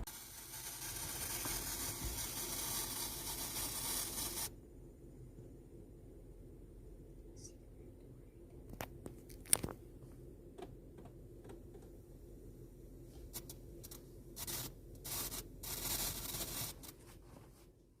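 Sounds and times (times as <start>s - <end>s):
speaker static crackling pops: 0.0s - 2.8s, 8.6s - 9.8s
bursts of hiss: 0.0s - 4.5s, 13.3s - 17.0s.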